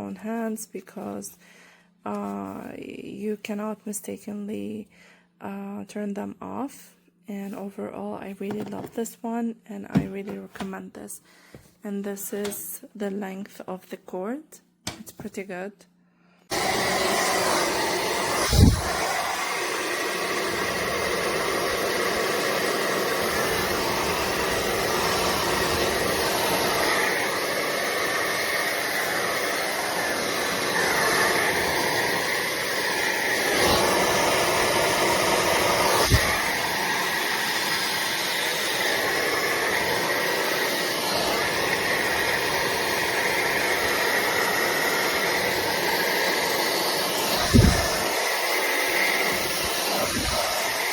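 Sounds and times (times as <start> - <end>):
hair dryer running: 16.5 - 50.9.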